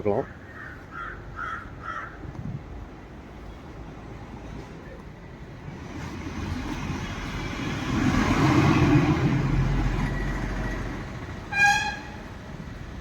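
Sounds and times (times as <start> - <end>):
vehicle passing by: 5.8 - 11.3.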